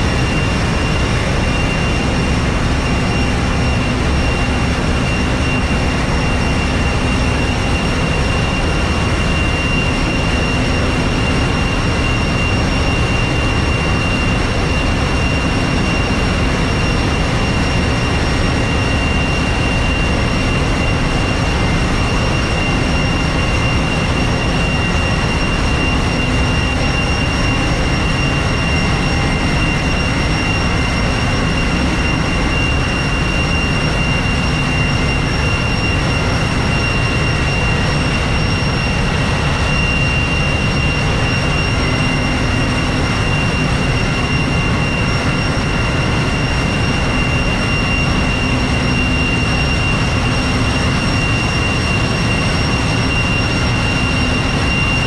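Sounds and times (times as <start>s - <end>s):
high-pitched machinery whine: 0.0s - 55.0s.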